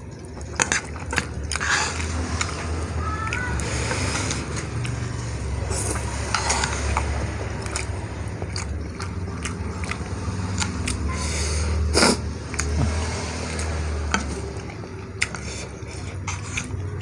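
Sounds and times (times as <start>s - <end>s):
slurping and chewing: 0.0s - 17.0s.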